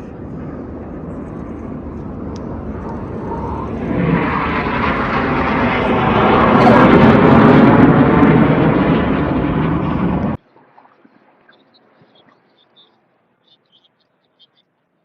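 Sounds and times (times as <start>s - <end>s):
jet engines roaring past: 0.0s - 10.9s.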